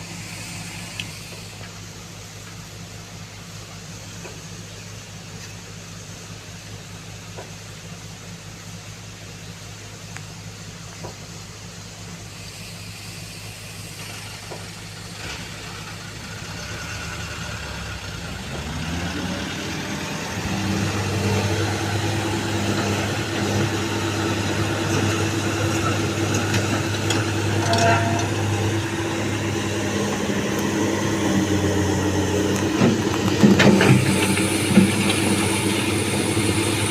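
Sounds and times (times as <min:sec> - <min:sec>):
diesel engine revving: 0:11.8 - 0:36.9.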